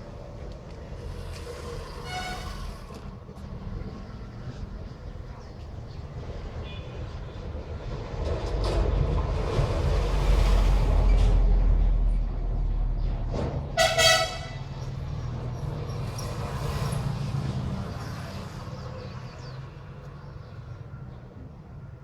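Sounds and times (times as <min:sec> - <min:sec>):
heavy vehicle rumbling past: 0:00.0 - 0:19.9
short horn toot: 0:13.8 - 0:14.7.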